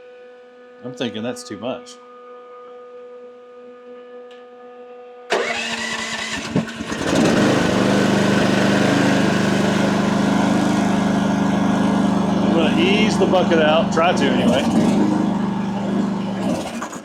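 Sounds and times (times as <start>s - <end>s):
diesel engine cranking and running: 5.3s - 17.0s.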